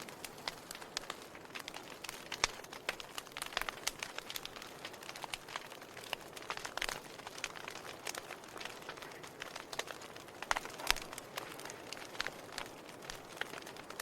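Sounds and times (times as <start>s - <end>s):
faint steady hiss: 0.0s - 14.0s
firewood crackling and popping: 0.0s - 14.0s.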